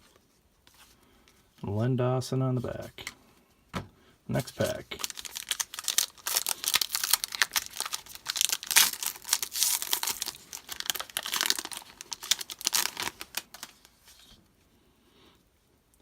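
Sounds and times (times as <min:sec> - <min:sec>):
foil wrapper tearing and crinkling: 0:04.6 - 0:14.0.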